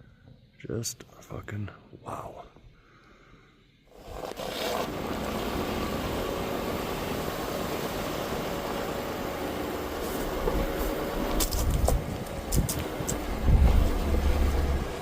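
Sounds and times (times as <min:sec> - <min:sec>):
road and tyre noise: 0:03.9 - 0:15.0
truck engine drone: 0:04.2 - 0:15.0.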